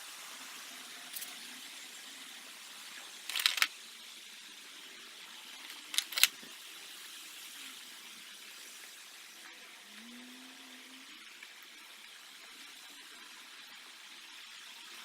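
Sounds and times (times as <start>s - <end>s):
steady hiss: 0.0s - 15.0s
metal tools clinking and rattling: 1.1s - 1.4s.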